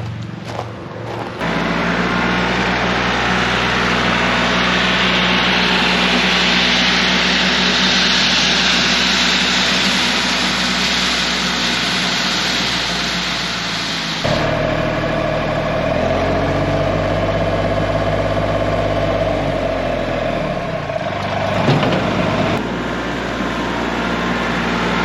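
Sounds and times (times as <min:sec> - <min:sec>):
tractor diesel engine running: 0:00.0 - 0:25.0
gravel scraping hiss: 0:03.2 - 0:14.3.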